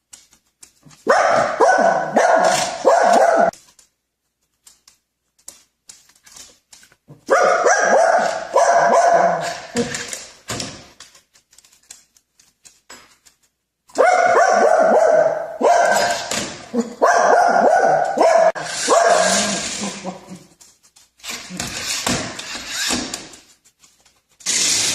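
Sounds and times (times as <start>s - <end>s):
dog barking: 1.0s - 3.6s, 7.2s - 9.9s, 13.9s - 20.3s.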